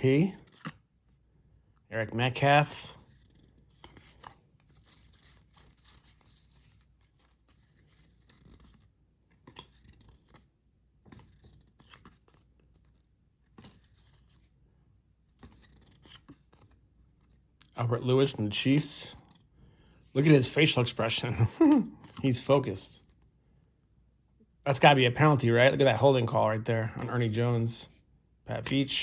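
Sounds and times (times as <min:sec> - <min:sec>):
trading cards rustling and clicking: 0:00.0 - 0:01.2, 0:02.3 - 0:14.6, 0:15.2 - 0:23.2, 0:24.8 - 0:29.0.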